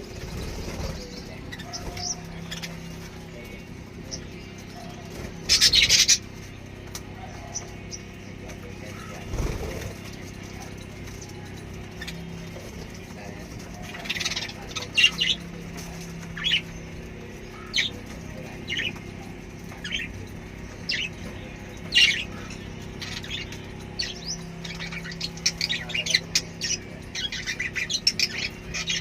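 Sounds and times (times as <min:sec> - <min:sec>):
lovebirds squawking chirps: 0:00.0 - 0:12.8, 0:13.5 - 0:29.0.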